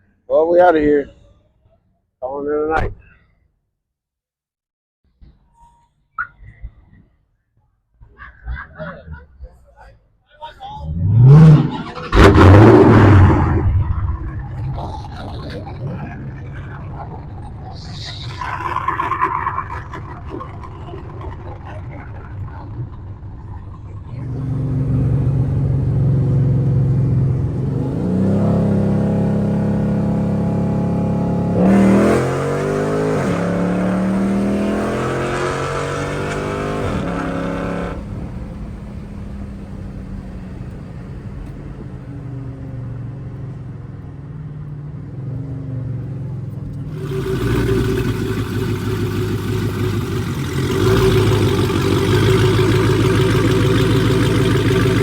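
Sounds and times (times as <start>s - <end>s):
car engine revving: 10.8s - 19.4s, 20.0s - 44.0s, 46.4s - 55.0s.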